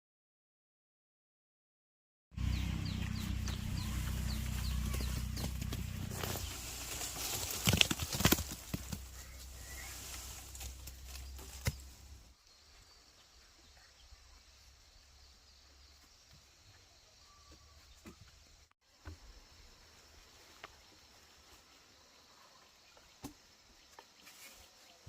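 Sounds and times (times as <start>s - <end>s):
low steady rumble: 2.4s - 7.3s
small bird chirping: 2.5s - 7.9s.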